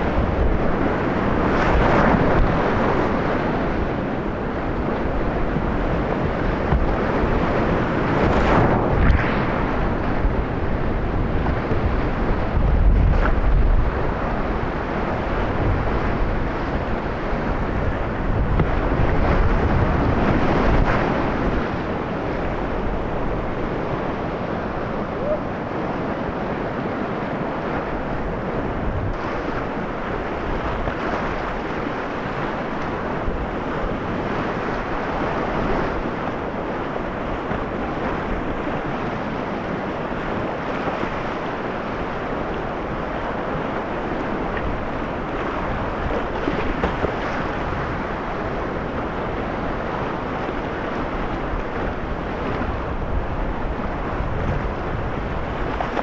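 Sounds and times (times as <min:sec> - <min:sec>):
river rapids rushing: 0:13.6 - 0:56.0.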